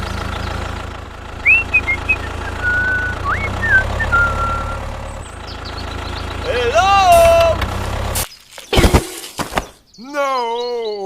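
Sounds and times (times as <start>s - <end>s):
tractor engine idling: 0.0s - 8.2s
whistled chirps: 1.4s - 4.9s.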